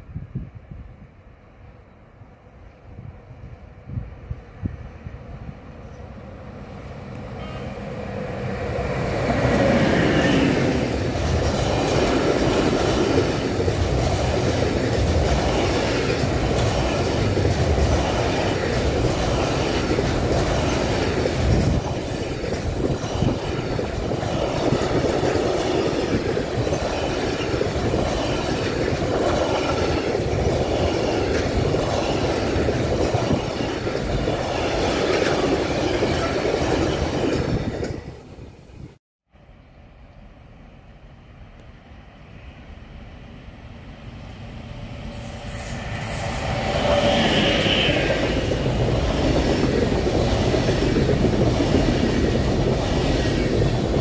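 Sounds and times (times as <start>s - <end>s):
electric locomotive passing: 0.0s - 54.0s
freight train wheels clattering: 9.3s - 38.2s.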